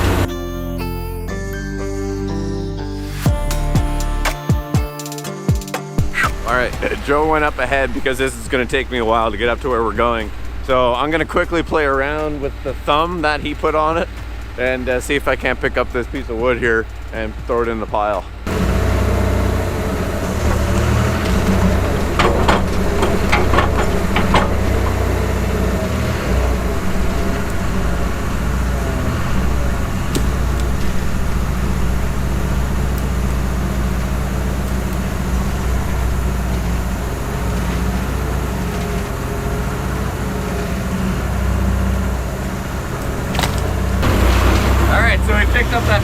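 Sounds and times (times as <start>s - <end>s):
excavator engine running: 0.0s - 46.0s
sharp knocks: 20.3s - 27.5s.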